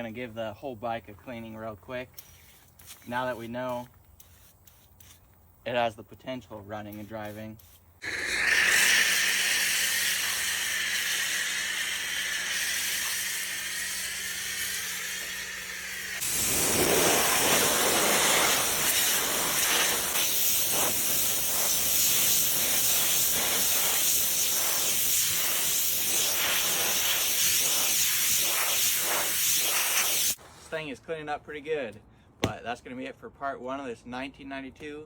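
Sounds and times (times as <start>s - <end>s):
water spray hissing: 7.0s - 30.4s.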